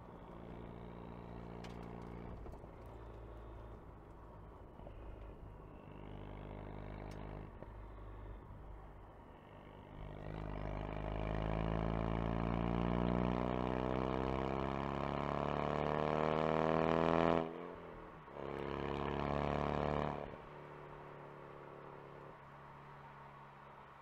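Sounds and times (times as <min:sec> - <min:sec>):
car engine accelerating hard: 0:09.7 - 0:20.5.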